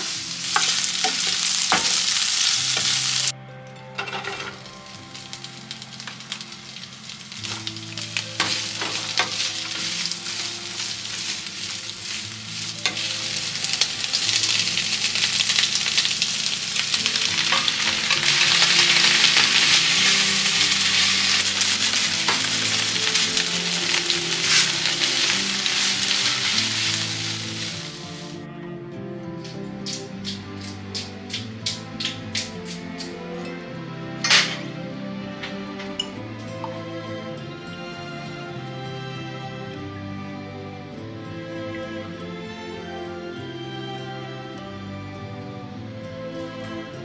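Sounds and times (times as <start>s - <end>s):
food sizzling in a frying pan: 0.0s - 3.3s, 4.2s - 28.4s
soft background music: 0.0s - 47.0s
utensil clicking against pan: 29.8s - 33.1s.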